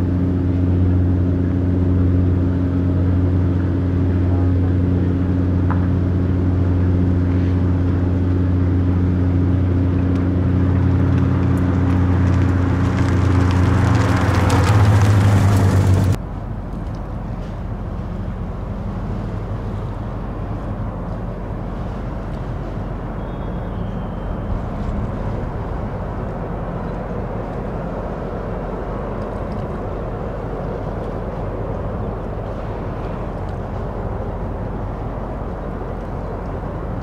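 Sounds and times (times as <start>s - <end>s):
loud engine sound: 0.0s - 37.0s.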